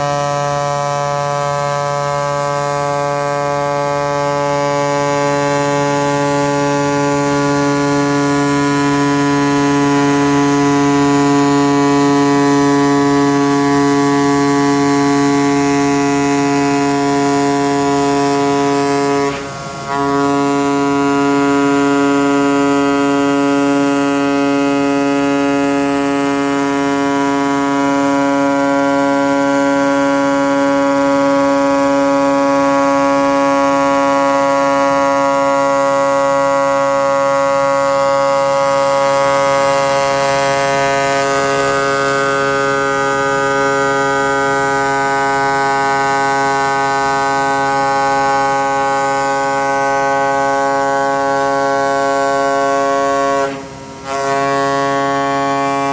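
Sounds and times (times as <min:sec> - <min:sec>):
cutting machine buzzing hum: 0:37.4 - 0:55.9.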